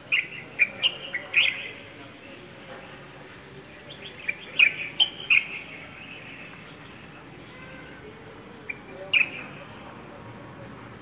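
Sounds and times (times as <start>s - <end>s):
small birds chirping: 0.0s - 1.9s, 3.7s - 8.0s, 8.6s - 9.6s.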